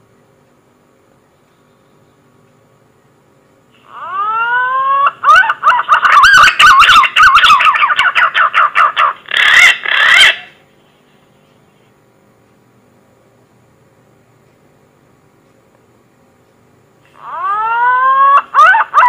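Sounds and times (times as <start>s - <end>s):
pigeon whistling call: 4.0s - 10.6s.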